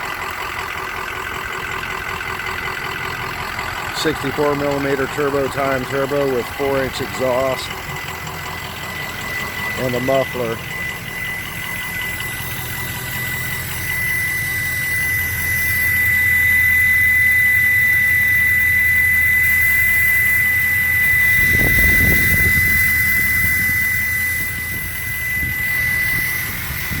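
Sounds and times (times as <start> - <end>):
diesel engine idling: 0.0 - 27.0
turbocharger high whistle: 1.3 - 27.0
low rumble: 21.1 - 27.0.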